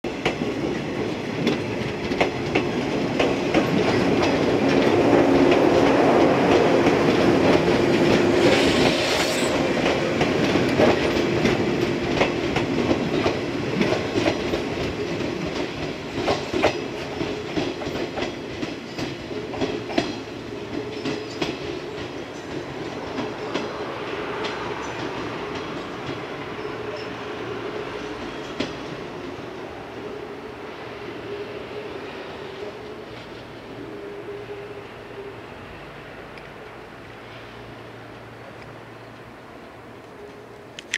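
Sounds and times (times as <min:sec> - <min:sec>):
train wheels clicking over rail joints: 0:00.1 - 0:23.8.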